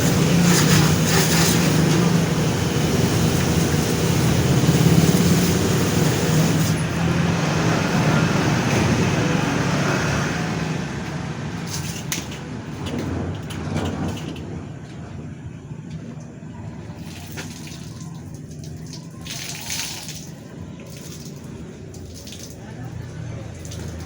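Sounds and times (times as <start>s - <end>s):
motor running: 0.0s - 6.8s.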